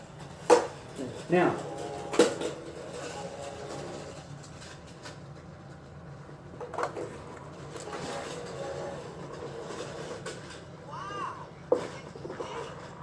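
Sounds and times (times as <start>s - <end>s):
toy train motor hum: 1.0s - 5.0s, 7.6s - 11.4s.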